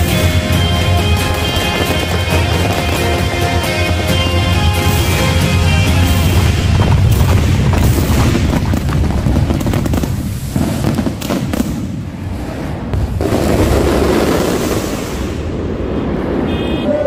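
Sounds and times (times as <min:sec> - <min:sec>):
show music: 0:00.0 - 0:07.7
deep rumble: 0:00.0 - 0:16.5
fireworks bangs and crackles: 0:00.0 - 0:17.0.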